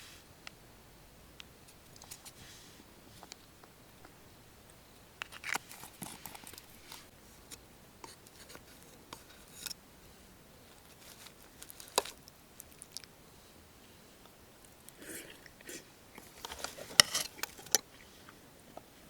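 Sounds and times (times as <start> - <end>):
objects clicking and rustling: 16.2 - 17.9.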